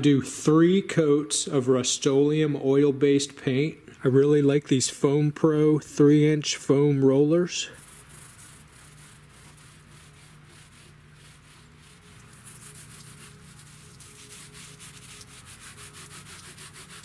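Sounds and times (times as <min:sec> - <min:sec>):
paint roller rubbing on wood: 0:07.6 - 0:17.0.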